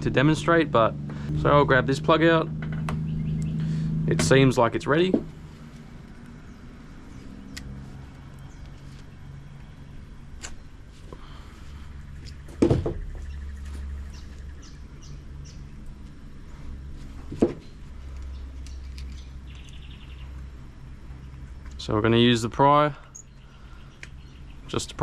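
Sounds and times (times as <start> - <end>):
steady low hum: 0.0 - 25.0
heavy knocks: 12.5 - 13.2.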